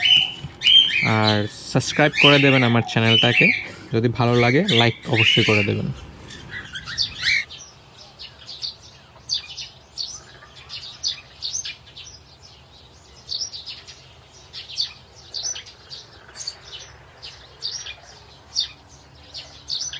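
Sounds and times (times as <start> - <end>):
cockatiels chirping: 0.0 - 12.2.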